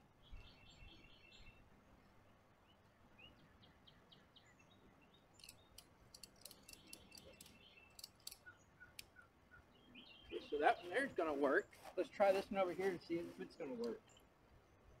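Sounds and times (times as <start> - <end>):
faint birds chirping: 0.0 - 15.0
faint sharp clicks: 5.4 - 9.2, 13.8 - 14.2.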